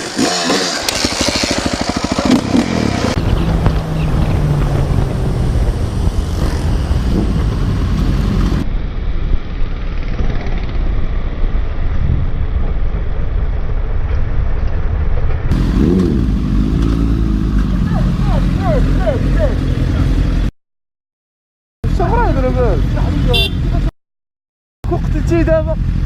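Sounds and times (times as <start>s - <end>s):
motorcycle engine running: 0.0s - 8.6s, 15.5s - 20.5s, 21.8s - 23.9s
wind rumble on microphone: 2.4s - 16.3s.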